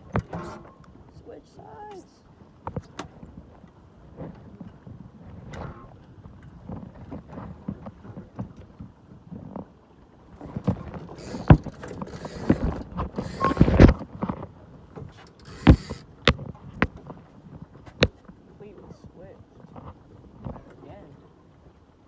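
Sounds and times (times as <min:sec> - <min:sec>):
knocks on a sailboat: 0:10.4 - 0:14.4, 0:15.0 - 0:17.2
rustling: 0:10.4 - 0:14.4
short rushes of noise: 0:10.7 - 0:14.0, 0:15.3 - 0:16.3.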